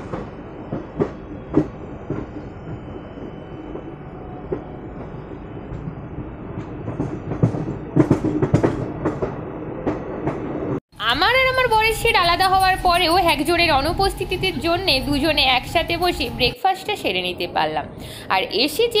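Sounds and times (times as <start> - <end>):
train rumble: 0.0 - 19.0
wheels clacking over rail joints: 6.6 - 10.8.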